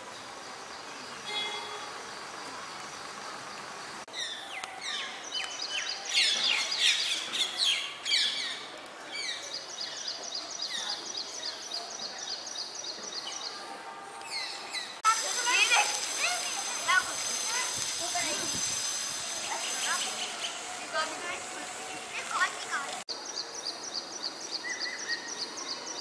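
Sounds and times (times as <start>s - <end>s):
birds chirping and singing: 4.1s - 13.6s, 17.2s - 26.0s.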